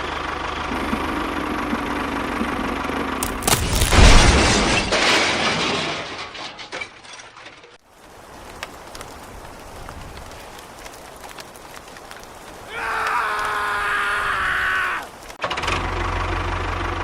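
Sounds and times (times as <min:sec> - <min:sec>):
loud crashing clattering rush: 0:03.2 - 0:07.6.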